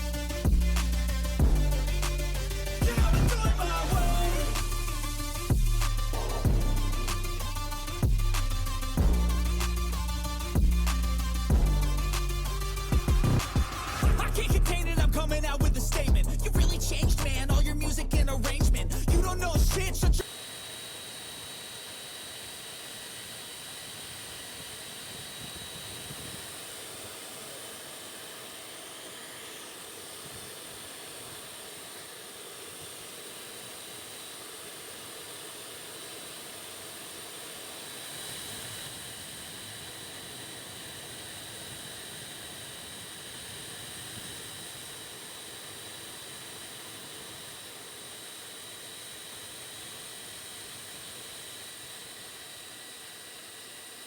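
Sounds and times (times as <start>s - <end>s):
small motor grinder whine: 20.2s - 54.0s.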